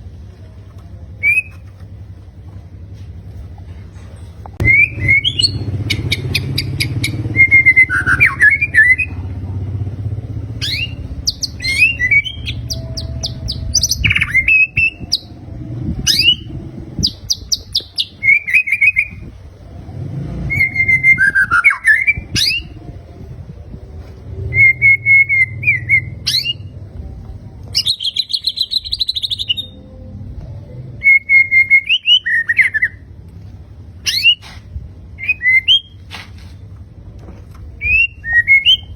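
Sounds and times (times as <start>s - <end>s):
low hum: 0.0s - 34.1s
bird singing whistled phrases: 1.2s - 1.6s, 4.6s - 9.1s, 10.6s - 15.3s, 16.1s - 19.2s, 20.5s - 22.8s, 24.5s - 26.7s, 27.8s - 29.8s, 31.0s - 33.0s, 34.1s - 34.5s, 35.2s - 36.0s, 37.8s - 38.9s.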